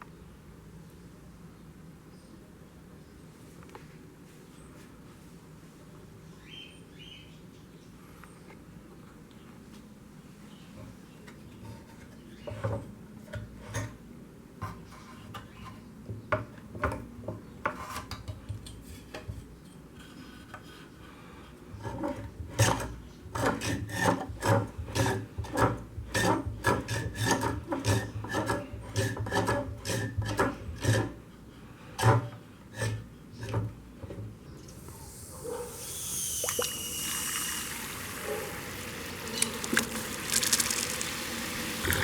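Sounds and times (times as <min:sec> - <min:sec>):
hand file rasping strokes: 0:21.8 - 0:31.3, 0:32.0 - 0:33.1.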